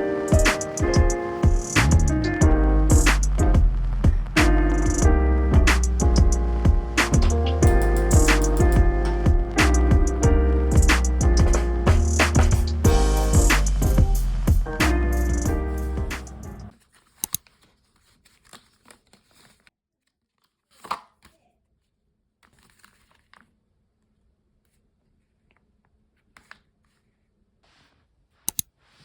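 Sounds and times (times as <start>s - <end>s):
rustling and crinkling: 16.7s - 29.0s.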